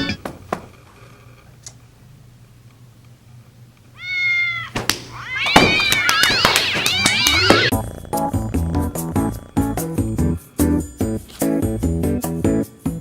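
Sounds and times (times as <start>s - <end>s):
cat meowing: 4.0s - 9.7s.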